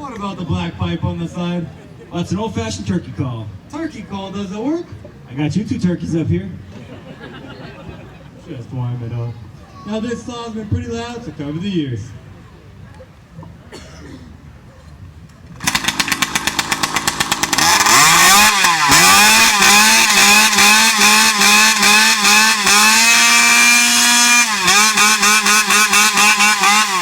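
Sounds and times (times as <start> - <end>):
chainsaw engine revving: 15.5 - 27.0.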